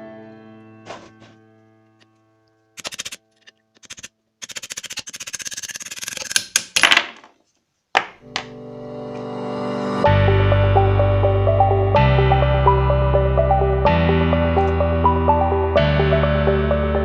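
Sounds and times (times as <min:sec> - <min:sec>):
background music: 0:00.0 - 0:03.6, 0:08.2 - 0:17.0
sewing machine clicking: 0:02.8 - 0:03.2, 0:03.8 - 0:06.6.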